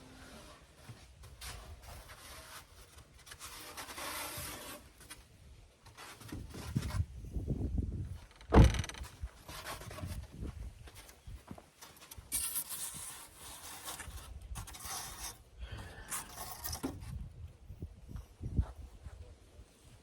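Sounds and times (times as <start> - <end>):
scraping and knocking work noises: 0.0 - 7.1, 8.1 - 17.4
sharp loud thump: 8.5 - 9.0.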